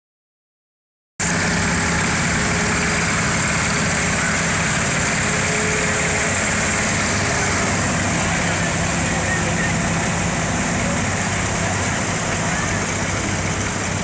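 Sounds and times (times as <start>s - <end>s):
tractor engine running: 1.2s - 14.0s.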